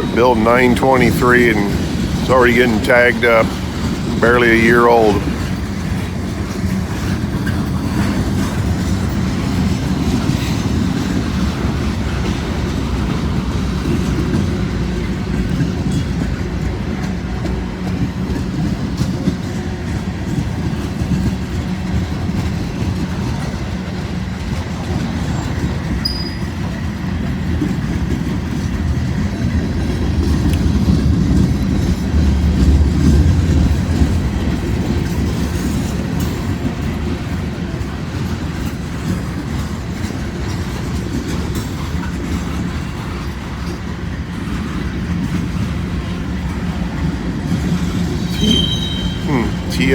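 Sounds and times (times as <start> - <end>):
clickety-clack over rail joints: 0.0 - 4.2, 5.2 - 49.7
train wheels rumbling on rail: 0.0 - 49.9
faint wheel squeal: 26.0 - 26.6, 48.2 - 49.7.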